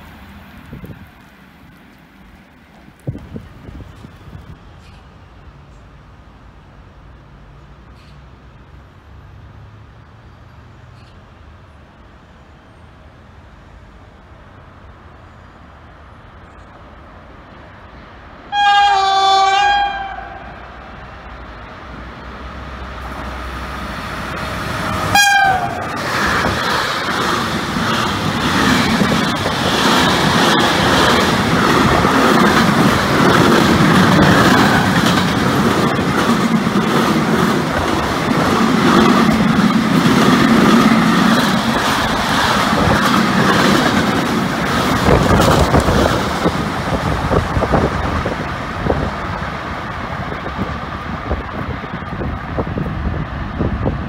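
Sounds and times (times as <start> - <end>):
freight train rushing rumble: 0.0 - 10.0, 10.6 - 54.0
locomotive horn blasts: 18.5 - 20.7, 25.0 - 25.9
wheels clattering over rail joints: 22.8 - 52.3.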